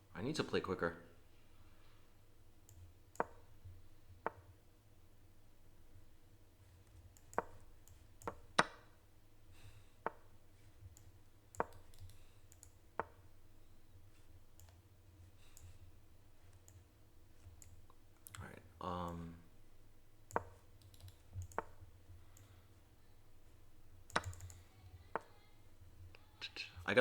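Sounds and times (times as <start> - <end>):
faint low hum: 0.0 - 27.0
sharp clicks of chess moves: 3.2 - 3.6, 7.2 - 8.9, 9.6 - 10.4, 11.6 - 12.3, 12.9 - 13.3, 20.3 - 21.9.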